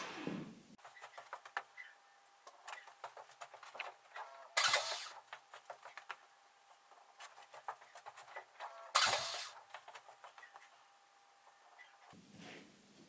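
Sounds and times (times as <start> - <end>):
loud hissing blasts: 9.0 - 9.6.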